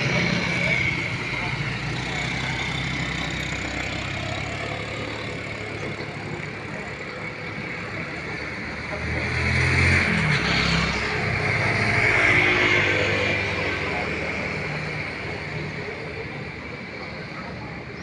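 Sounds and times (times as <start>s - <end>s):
road noise rush: 0.0s - 18.0s
vehicle engines running: 0.0s - 18.0s.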